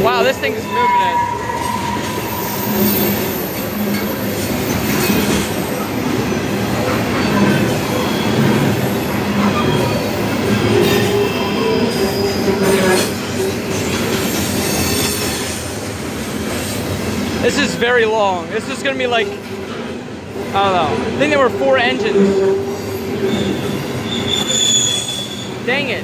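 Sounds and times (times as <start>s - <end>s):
wheels squealing: 0.0s - 15.7s, 21.3s - 26.0s
freight train wheels rumbling: 0.0s - 26.0s.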